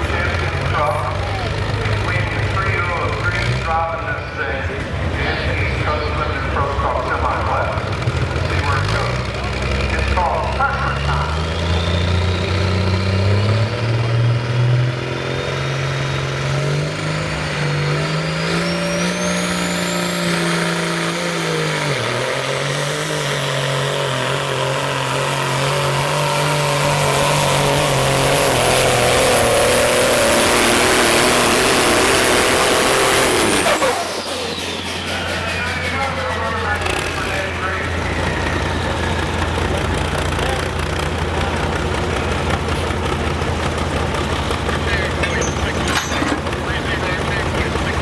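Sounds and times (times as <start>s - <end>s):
diesel truck engine at full power: 0.0s - 48.0s
high whine: 26.8s - 39.8s.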